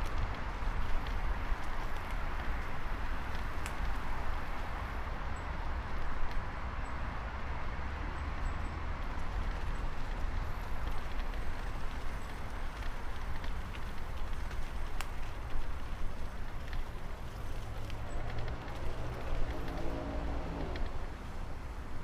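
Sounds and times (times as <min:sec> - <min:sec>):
bicycle tyre hiss on wet path: 0:00.1 - 0:05.3, 0:09.2 - 0:22.0
small clicks and rattles: 0:09.4 - 0:21.1.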